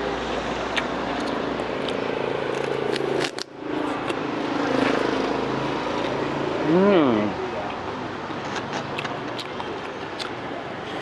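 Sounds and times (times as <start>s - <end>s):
street traffic hum: 0.0s - 11.0s
chewing and crunching: 0.6s - 5.3s, 8.4s - 11.0s.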